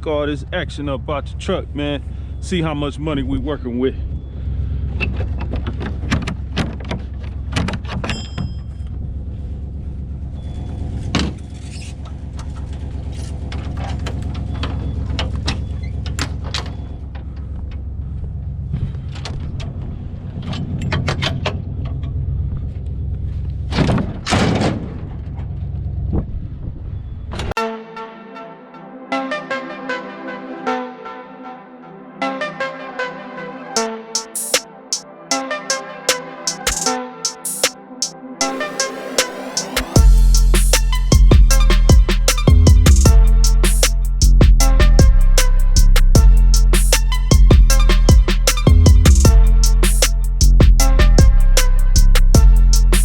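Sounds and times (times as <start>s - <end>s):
low engine rumble: 8.6s - 27.6s, 39.6s - 53.0s
music: 27.6s - 53.0s.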